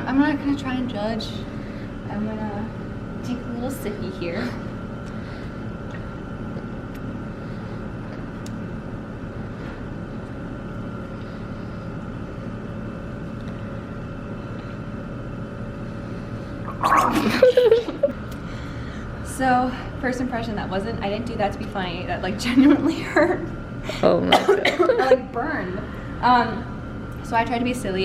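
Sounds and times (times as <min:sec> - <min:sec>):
steady room hum: 0:00.0 - 0:28.0
person gargling water: 0:16.6 - 0:17.9.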